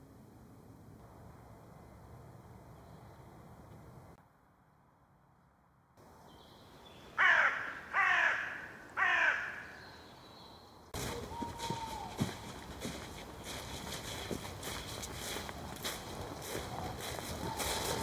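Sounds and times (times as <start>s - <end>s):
bird calls falling in pitch: 7.2s - 10.0s.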